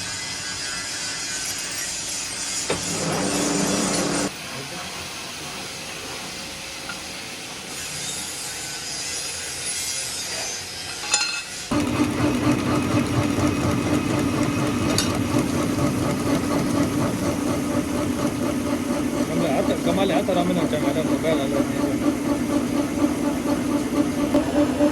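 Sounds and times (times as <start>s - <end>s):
machinery hissing and scraping: 0.0s - 6.6s
machine running with low hum: 11.7s - 24.9s.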